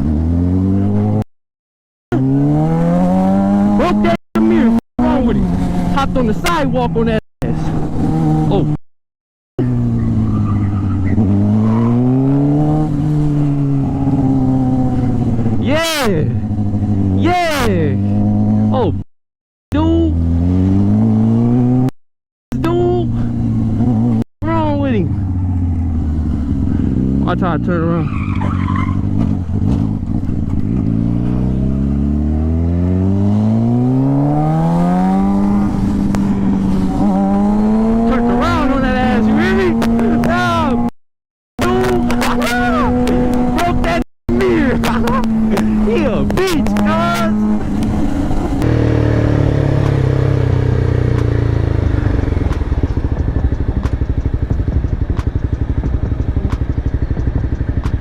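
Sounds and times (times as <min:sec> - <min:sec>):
motorcycle engine accelerating: 0:00.0 - 0:01.3, 0:02.1 - 0:08.8, 0:09.6 - 0:19.1, 0:19.8 - 0:41.0, 0:41.6 - 0:58.0
motorcycle engine idling: 0:51.2 - 0:58.0
sharp tick: 0:52.5 - 0:58.0.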